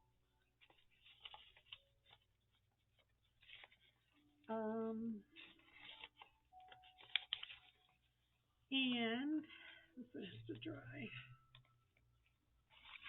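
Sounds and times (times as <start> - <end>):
paper pieces rustling and clicking: 0.6 - 4.2, 5.4 - 8.1, 12.7 - 13.0.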